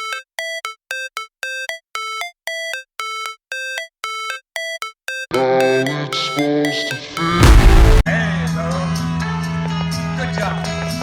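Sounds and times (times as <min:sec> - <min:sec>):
synthesized electronic beeps: 0:03.6 - 0:08.1.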